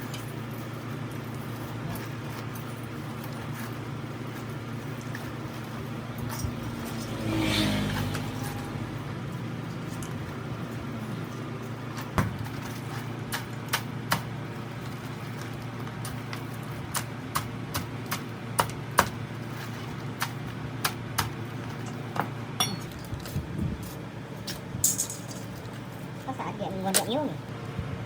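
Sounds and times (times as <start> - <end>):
sharp taps and clinks: 22.6 - 23.2.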